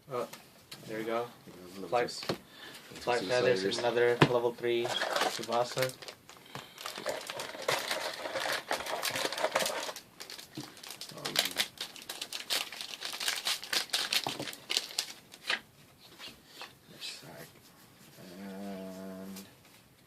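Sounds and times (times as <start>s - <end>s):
foil wrappers crinkling and tearing: 4.8s - 15.6s.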